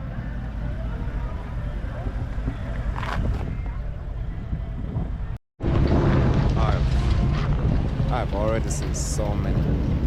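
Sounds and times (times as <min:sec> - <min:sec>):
faint voices: 0:00.0 - 0:05.4
car engines rumbling: 0:00.0 - 0:10.0.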